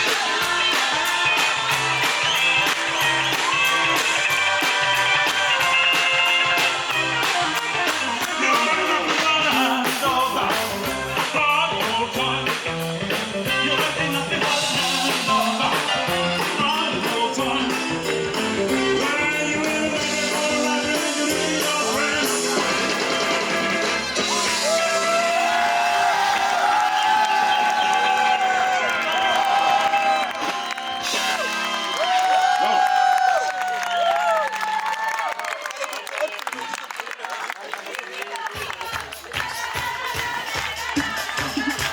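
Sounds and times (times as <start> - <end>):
man singing lead vocal: 0.0 - 1.5, 7.7 - 23.4
fast drum beat: 0.0 - 23.8, 38.5 - 41.9
rock and roll song: 0.0 - 34.5, 38.6 - 41.9.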